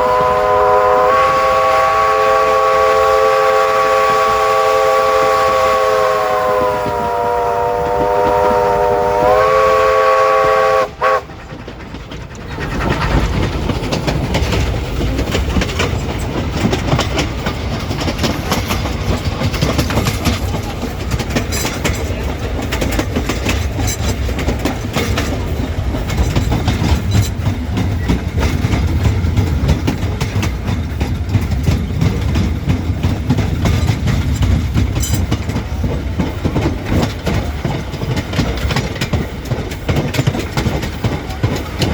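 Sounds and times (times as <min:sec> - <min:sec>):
steam locomotive whistle: 0:00.0 - 0:11.3
train wheels clattering on rails: 0:00.0 - 0:41.9.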